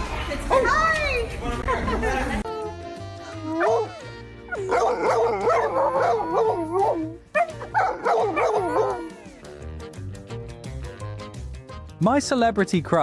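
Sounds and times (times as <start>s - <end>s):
background music: 0.0s - 13.0s
dog howling: 3.4s - 9.4s.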